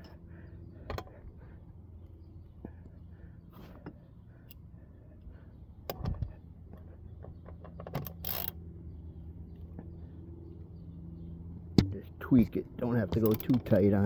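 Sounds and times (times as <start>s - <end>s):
steady low hum: 0.0s - 14.0s
wrench clicking on metal: 8.0s - 8.6s.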